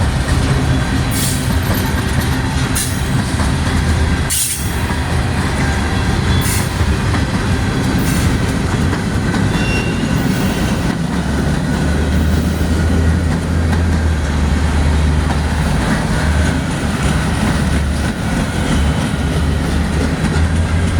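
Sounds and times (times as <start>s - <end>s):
train wheels rumbling on rail: 0.0s - 20.9s.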